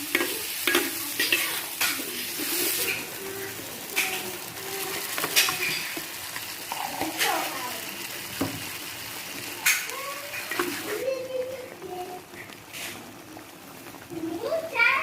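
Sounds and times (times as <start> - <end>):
spoons scraping plates: 0.0 - 6.1
crackling hiss: 0.0 - 15.0.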